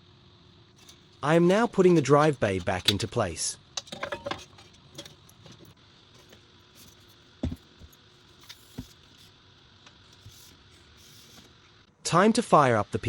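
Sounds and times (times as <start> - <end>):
parts knocking and clicking: 0.8 - 3.2, 3.8 - 9.2.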